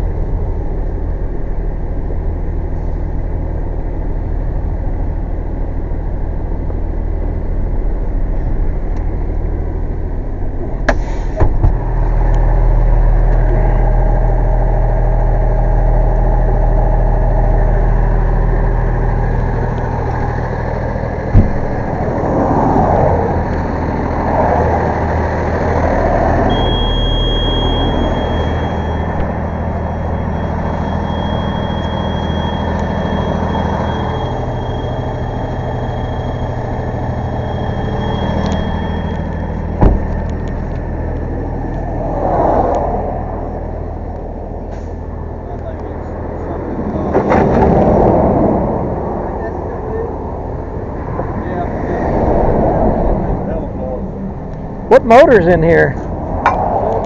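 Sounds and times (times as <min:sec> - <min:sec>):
vehicle engine running: 0:00.0 - 0:57.0
high-pitched tone: 0:25.8 - 0:41.6.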